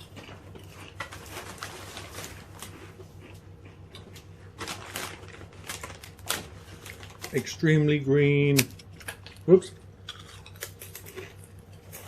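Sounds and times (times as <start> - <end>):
chips being chewed: 0.0 - 7.6, 8.6 - 12.0
steady low hum: 0.0 - 12.0.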